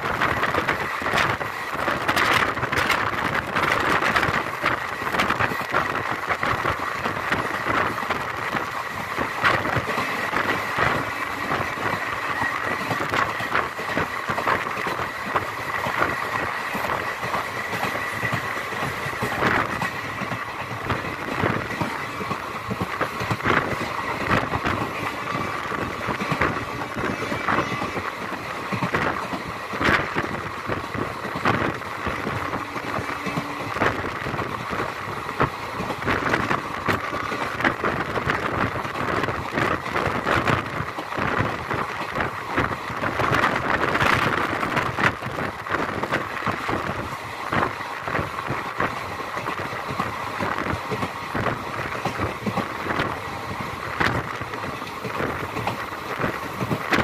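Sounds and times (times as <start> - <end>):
train running rumble: 0.0 - 57.0.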